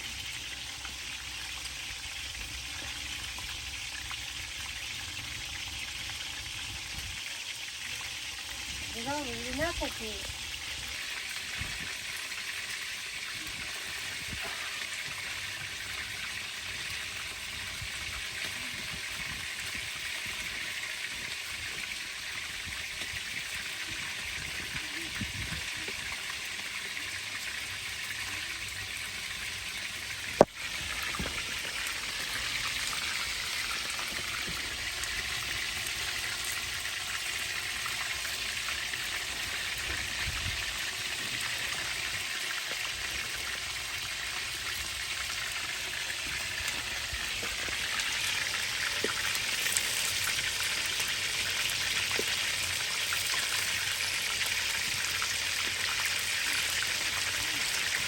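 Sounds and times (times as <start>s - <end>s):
rain hissing: 29.0s - 36.4s.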